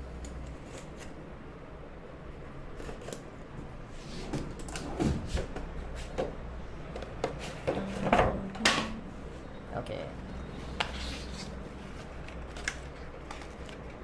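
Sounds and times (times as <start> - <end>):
cardboard packaging being handled: 10.8 - 14.0.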